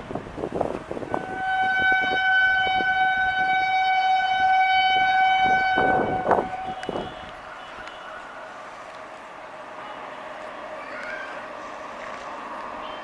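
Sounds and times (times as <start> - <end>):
locomotive horn blast: 1.0 - 8.4.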